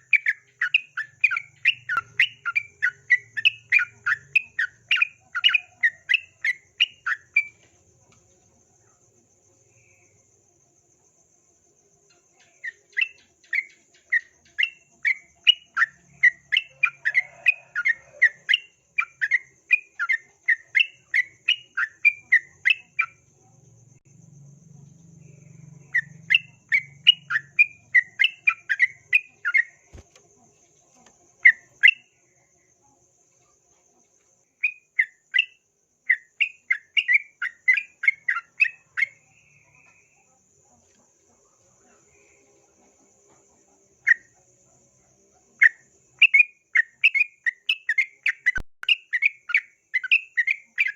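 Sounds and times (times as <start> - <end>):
bird singing repeated chirps: 0.0 - 7.5.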